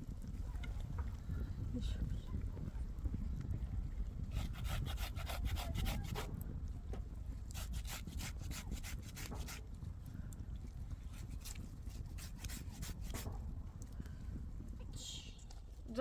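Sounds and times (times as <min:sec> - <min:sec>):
steady low rumble: 0:00.0 - 0:05.3
hand saw cutting wood: 0:04.3 - 0:06.3, 0:07.5 - 0:09.6, 0:11.1 - 0:13.3.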